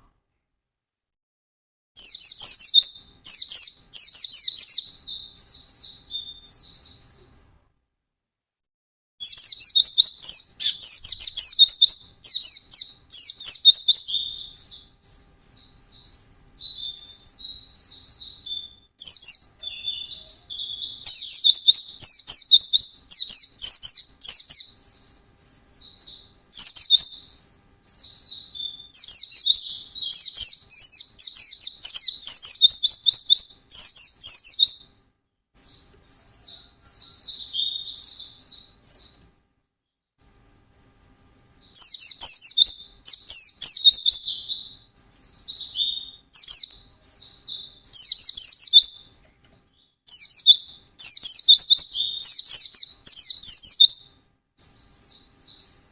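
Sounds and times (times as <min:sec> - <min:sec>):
bird twittering: 0:02.0 - 0:07.4, 0:09.2 - 0:35.0, 0:35.6 - 0:39.3, 0:40.2 - 0:55.9.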